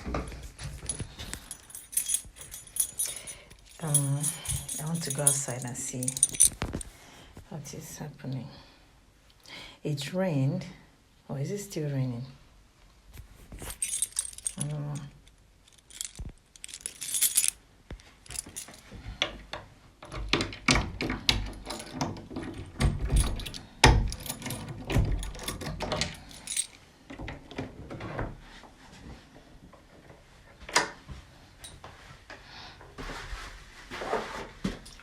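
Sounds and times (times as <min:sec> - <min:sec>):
keys jangling: 0:00.8 - 0:06.9, 0:13.6 - 0:18.9, 0:21.4 - 0:26.8.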